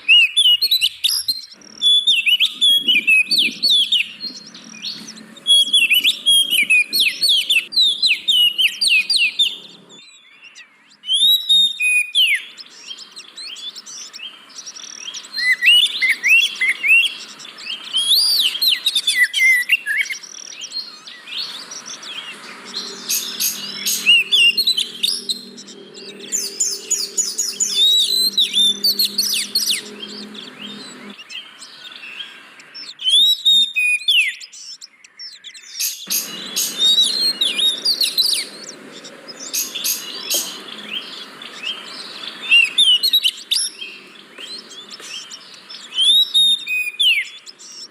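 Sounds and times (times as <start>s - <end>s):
bird singing whistled notes: 0.0s - 47.9s
faint low hum: 20.9s - 31.2s.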